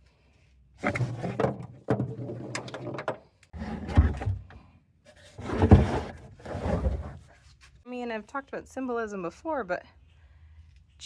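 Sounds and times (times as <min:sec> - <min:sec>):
objects knocking and scraping: 0:00.8 - 0:07.4.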